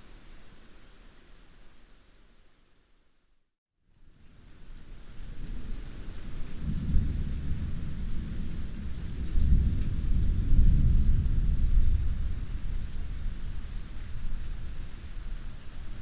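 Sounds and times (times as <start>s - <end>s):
heavy rain hissing: 4.0s - 16.0s
rolling thunder: 5.4s - 16.0s.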